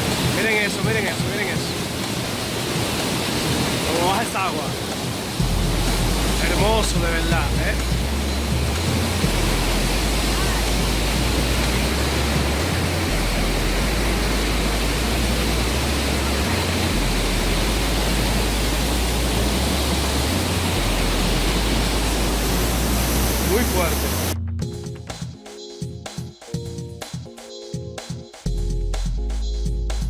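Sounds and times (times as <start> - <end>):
waterfall roaring: 0.0 - 24.4.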